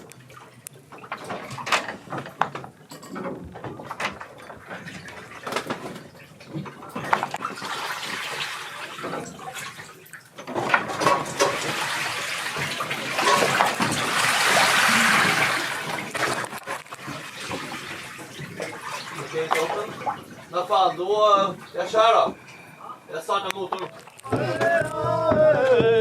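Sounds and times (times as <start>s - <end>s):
water rushing and splashing: 6.9s - 22.2s
knocks: 24.3s - 26.0s.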